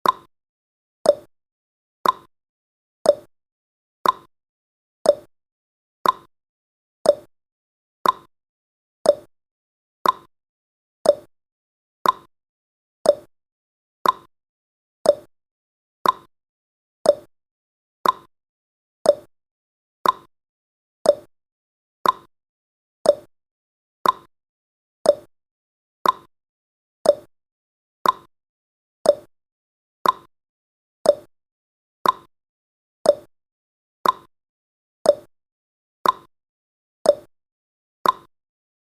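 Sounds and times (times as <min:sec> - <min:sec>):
clock ticking: 0:02.0 - 0:02.3, 0:04.0 - 0:04.3, 0:06.0 - 0:06.3, 0:08.0 - 0:08.3, 0:10.0 - 0:10.3, 0:12.0 - 0:12.3, 0:13.1 - 0:13.3, 0:14.0 - 0:14.3, 0:15.1 - 0:15.3, 0:16.0 - 0:16.3, 0:18.0 - 0:18.3, 0:20.0 - 0:20.3, 0:22.0 - 0:22.3, 0:24.0 - 0:24.3, 0:25.1 - 0:25.3, 0:26.0 - 0:26.3, 0:27.1 - 0:27.3, 0:28.0 - 0:28.3, 0:29.1 - 0:29.3, 0:30.0 - 0:30.3, 0:32.0 - 0:32.3, 0:33.1 - 0:33.3, 0:34.0 - 0:34.3, 0:36.0 - 0:36.3, 0:38.0 - 0:38.3.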